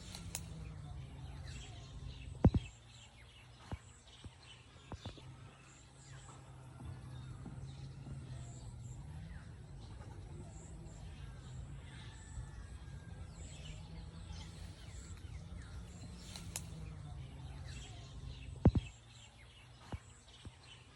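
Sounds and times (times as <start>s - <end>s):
sharp click: 0.0s - 0.7s, 14.9s - 17.0s
low steady hum: 0.0s - 20.9s
small birds chirping: 0.0s - 20.9s.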